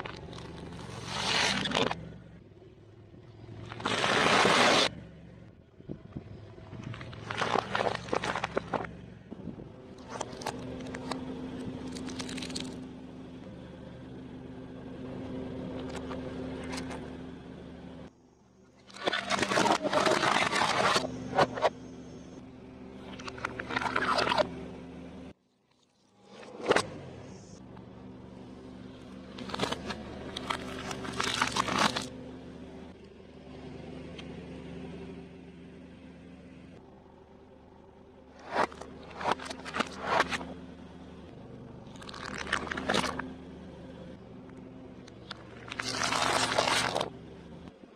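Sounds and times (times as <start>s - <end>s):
low engine hum: 0.0s - 47.9s
food packaging crunching under tyres: 6.8s - 8.9s, 11.8s - 12.8s, 29.3s - 32.2s, 38.4s - 40.5s, 41.8s - 43.3s, 45.1s - 47.1s
small cracks and clicks: 10.0s - 12.8s.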